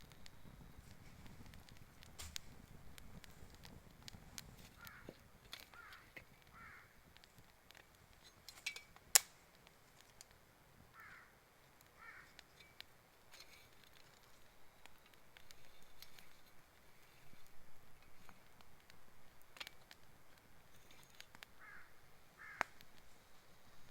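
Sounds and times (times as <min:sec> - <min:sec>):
wood fire crackling: 0:00.0 - 0:23.9
crow cawing: 0:04.8 - 0:07.0, 0:10.9 - 0:11.4, 0:12.0 - 0:12.4, 0:21.6 - 0:22.8
sharp pop from fire: 0:09.1 - 0:09.5.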